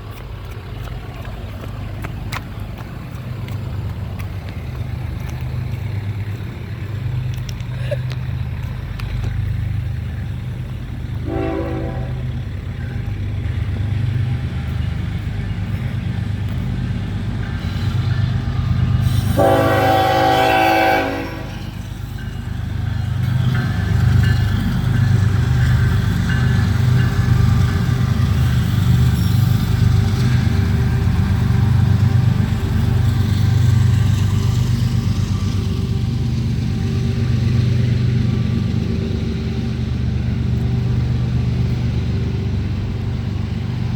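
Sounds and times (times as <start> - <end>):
diesel train rumble: 0.0 - 43.9
train horn blasts: 11.2 - 12.4, 19.1 - 21.8.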